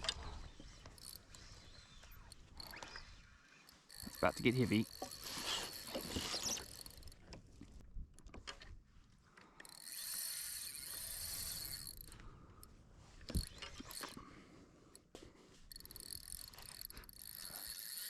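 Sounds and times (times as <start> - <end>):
reel clicks: 0.0 - 8.7, 9.4 - 14.2, 15.6 - 18.0
fishing reel drag buzzing: 0.1 - 7.3, 9.6 - 14.2, 15.7 - 18.0.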